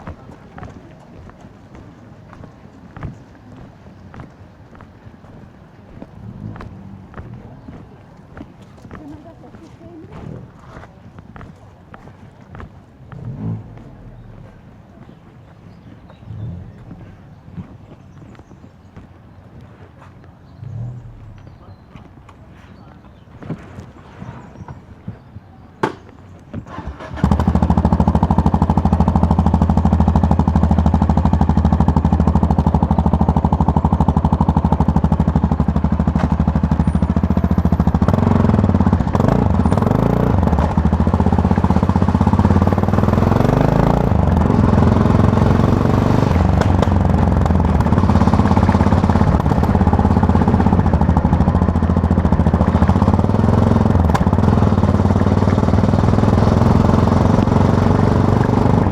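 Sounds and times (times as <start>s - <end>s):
motorcycle engine on the move: 0.0s - 58.9s
sharp knocks: 25.8s - 26.2s.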